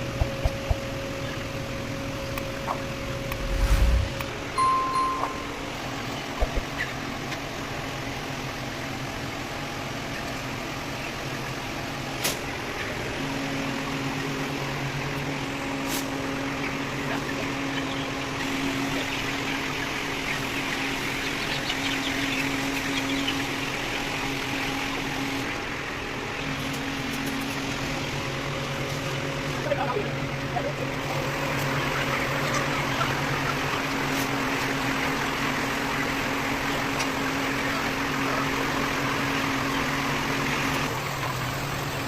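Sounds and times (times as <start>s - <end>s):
hum: 0.0s - 6.7s
machine droning: 0.0s - 9.8s.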